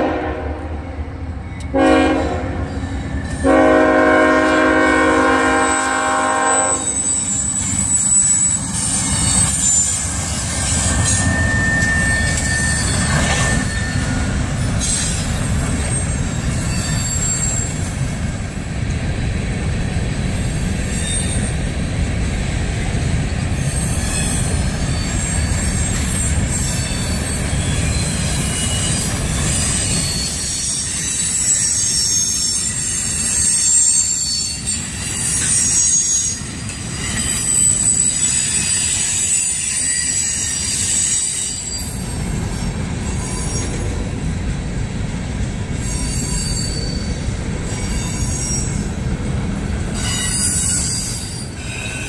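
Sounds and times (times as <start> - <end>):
train horn blasts: 0.0 - 1.0, 1.7 - 2.8, 3.4 - 7.2
train wheel squeals: 0.7 - 19.2, 19.8 - 22.1, 23.0 - 44.6, 45.3 - 52.0
freight cars rumbling and clattering: 7.3 - 31.2.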